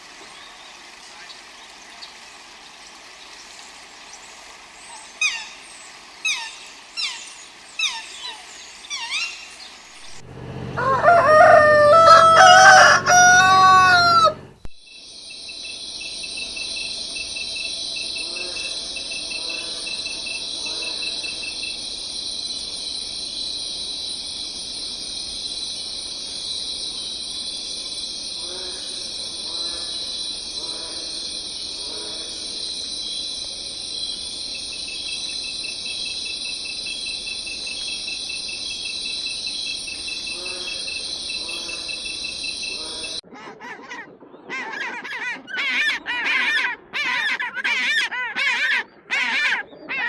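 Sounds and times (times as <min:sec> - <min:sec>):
sharp falling bird calls: 0:09.1 - 0:14.6
high-pitched insect chorus: 0:09.9 - 0:43.2
rooster crowing: 0:10.0 - 0:14.6, 0:28.3 - 0:32.9, 0:39.7 - 0:43.2.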